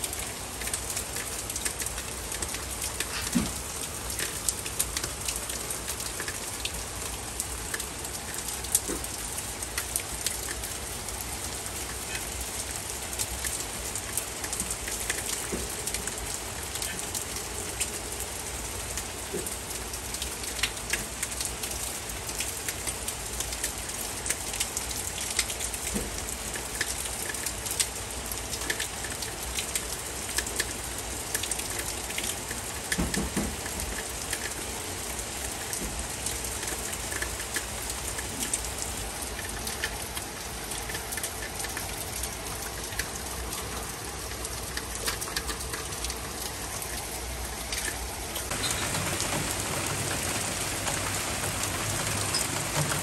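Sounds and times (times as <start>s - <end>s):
heavy rain hissing: 0.0s - 19.7s, 45.7s - 53.0s
raindrop ticks: 0.0s - 53.0s.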